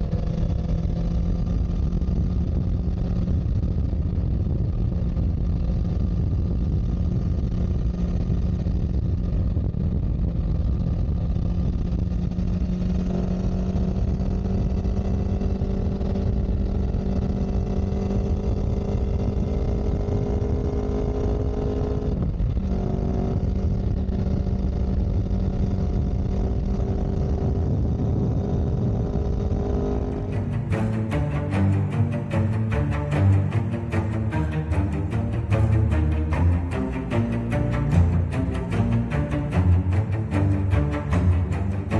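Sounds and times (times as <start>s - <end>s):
vehicle engine running: 0.0s - 18.1s, 29.3s - 41.9s.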